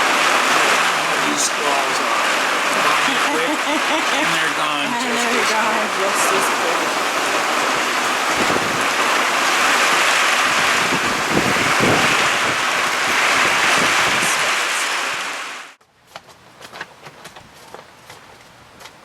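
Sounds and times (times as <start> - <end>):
heavy rain: 0.0 - 15.8
wind gusts on microphone: 5.8 - 15.7.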